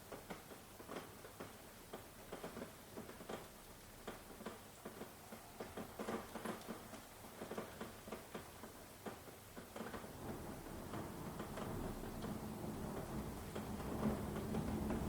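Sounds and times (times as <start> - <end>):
soft rain hiss: 0.0 - 15.0
heavy raindrops pattering: 4.9 - 15.0.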